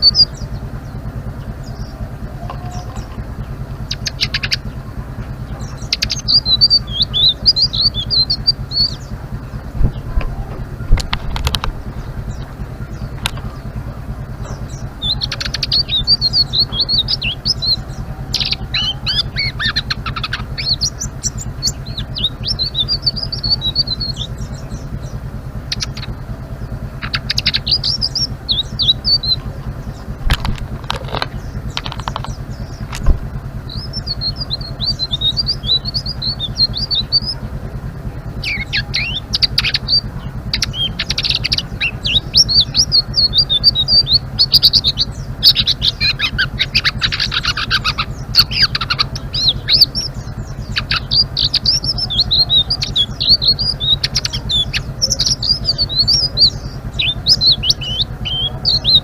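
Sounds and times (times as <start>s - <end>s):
low hum: 0.0s - 59.0s
songbird twittering: 0.0s - 59.0s
sharp clicks: 9.9s - 12.5s, 13.1s - 13.6s, 30.2s - 35.9s.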